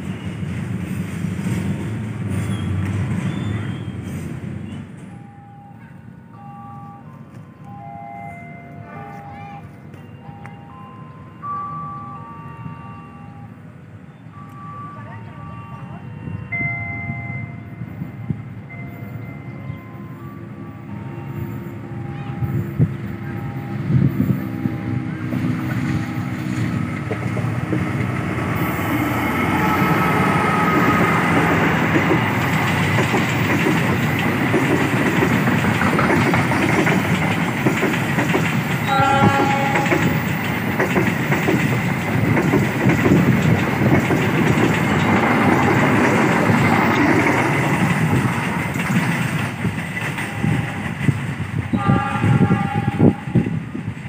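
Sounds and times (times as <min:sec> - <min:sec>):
train wheels clattering and rumbling: 0:00.0 - 0:05.1, 0:22.2 - 0:54.0
train horn: 0:29.2 - 0:31.3, 0:38.8 - 0:40.3, 0:51.7 - 0:53.7.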